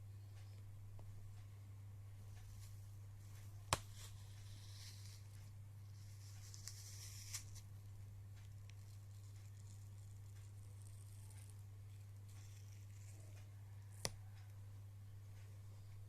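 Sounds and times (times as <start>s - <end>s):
soft crackling hiss: 0.0s - 16.0s
steady low hum: 0.0s - 16.0s.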